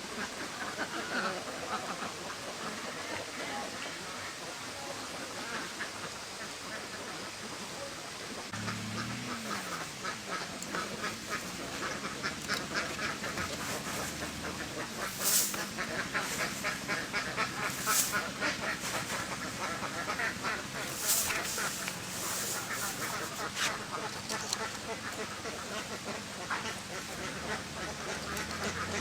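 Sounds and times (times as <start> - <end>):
ducks quacking: 0.0 - 29.0
hissing rushes: 10.8 - 23.7.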